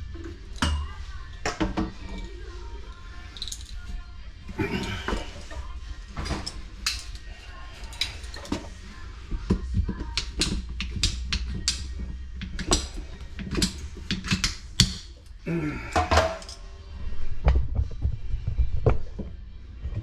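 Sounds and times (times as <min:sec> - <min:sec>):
clicks and clunks of plumbing tools: 0:04.6 - 0:07.2, 0:07.8 - 0:08.8, 0:09.4 - 0:16.6.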